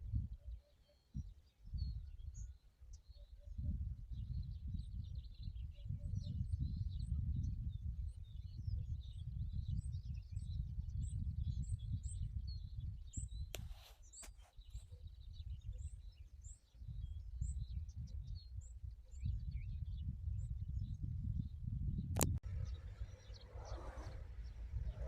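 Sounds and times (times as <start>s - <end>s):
small birds chirping: 0.0s - 25.0s
low rumble: 22.3s - 25.0s.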